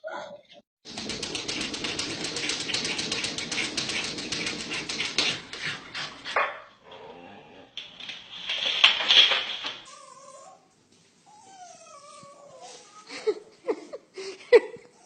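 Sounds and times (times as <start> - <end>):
dog scratching with rapid clicks: 0.8 - 6.4, 7.8 - 9.9.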